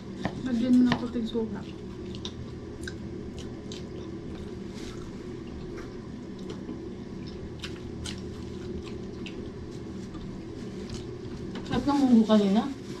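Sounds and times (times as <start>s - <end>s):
people chewing and lip-smacking: 1.6s - 11.5s.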